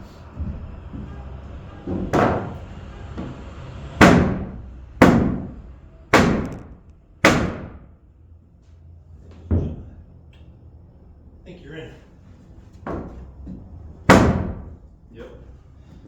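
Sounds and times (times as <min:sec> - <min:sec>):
heavy hammer blows: 0:00.0 - 0:08.0.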